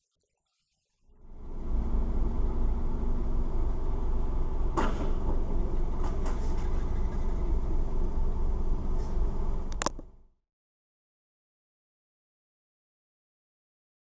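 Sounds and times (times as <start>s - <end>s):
vehicle road and engine rumble: 1.2s - 10.3s
sharp bang: 4.7s - 6.7s.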